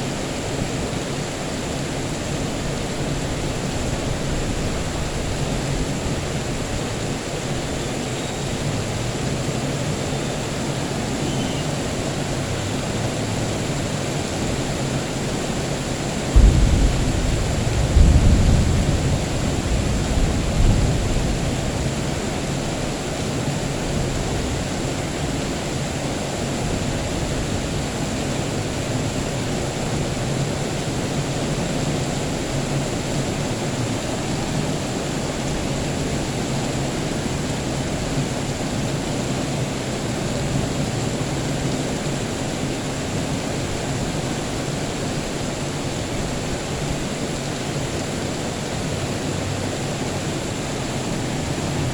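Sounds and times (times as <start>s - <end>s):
steady rain: 0.0s - 51.9s
low thunder rumble: 1.4s - 7.8s, 14.4s - 30.1s.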